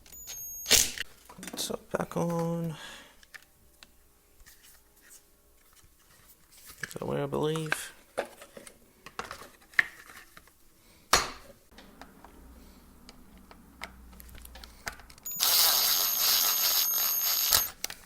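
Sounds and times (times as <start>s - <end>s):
handheld power tool running: 15.3s - 17.8s.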